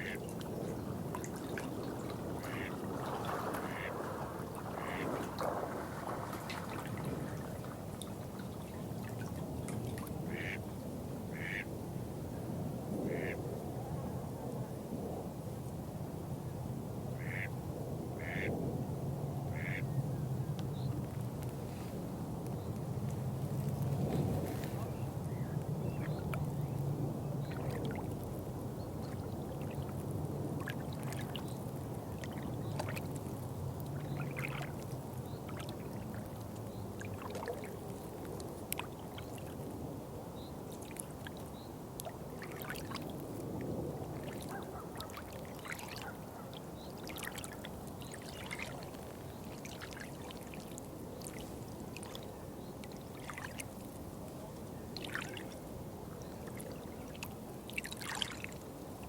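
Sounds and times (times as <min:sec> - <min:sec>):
water trickling and splashing: 0:00.0 - 0:10.6, 0:27.4 - 0:39.8, 0:40.4 - 0:59.0.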